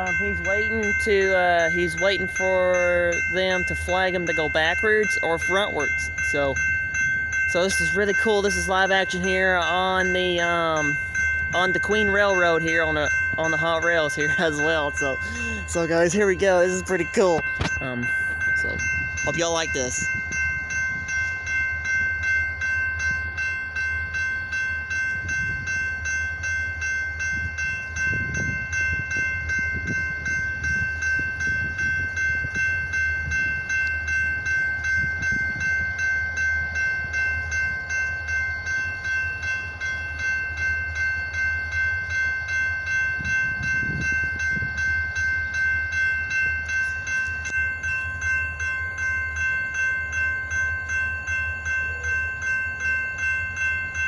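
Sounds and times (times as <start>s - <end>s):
diesel locomotives rumbling: 0.0s - 54.0s
pulsing high ringing tone: 0.0s - 54.0s.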